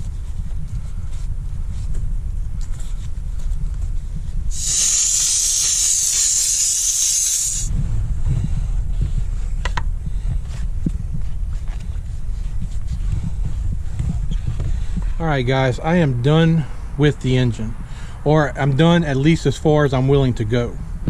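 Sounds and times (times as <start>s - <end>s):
steam cleaner hissing: 4.5s - 7.7s
low rumble: 7.3s - 15.2s.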